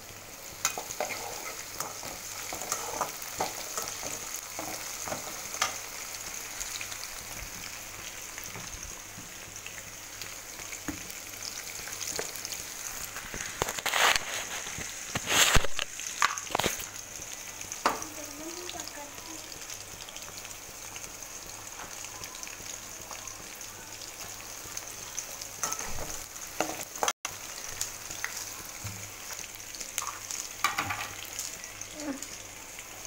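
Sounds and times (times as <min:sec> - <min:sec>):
potatoes sizzling in hot oil: 0:00.0 - 0:33.0
metal spoon scraping a wok: 0:00.7 - 0:05.7.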